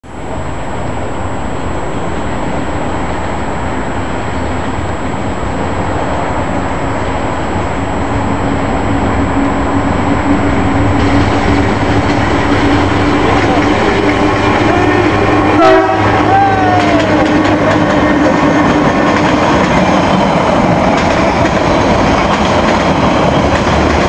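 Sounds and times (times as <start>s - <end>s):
train rumble: 0.0s - 24.0s
humming tone: 7.6s - 17.3s.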